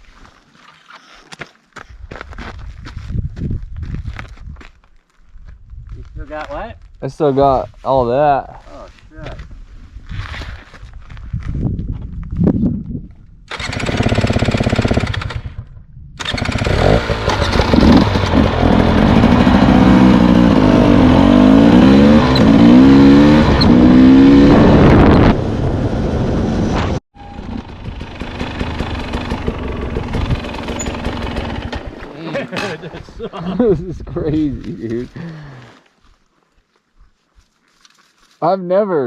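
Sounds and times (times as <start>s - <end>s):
dirt bike engine revving: 13.5s - 15.6s, 16.2s - 33.0s.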